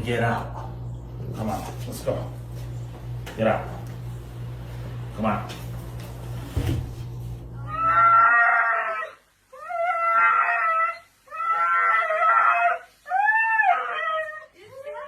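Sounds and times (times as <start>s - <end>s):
dog howling: 7.6s - 15.0s.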